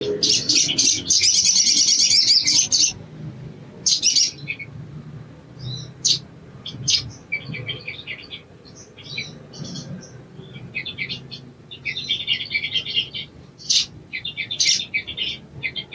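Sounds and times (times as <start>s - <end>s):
bird chirps: 0.0s - 3.0s.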